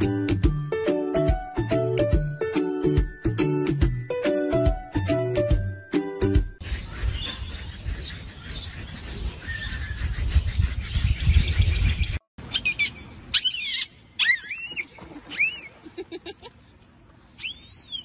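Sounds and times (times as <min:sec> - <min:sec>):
dolphin whistles and squeaks: 0:06.6 - 0:15.7, 0:17.4 - 0:18.0.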